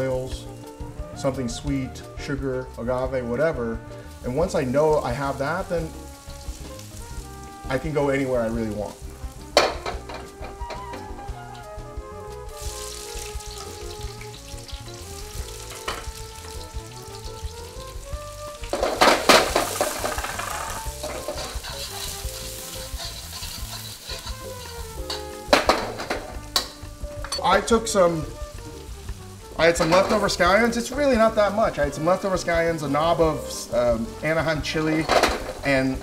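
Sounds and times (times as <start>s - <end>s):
food sizzling in a wok: 0.0s - 36.0s
soft background music: 0.0s - 36.0s
wok knocking: 9.0s - 11.6s, 12.8s - 16.7s, 17.3s - 31.4s, 34.6s - 35.9s.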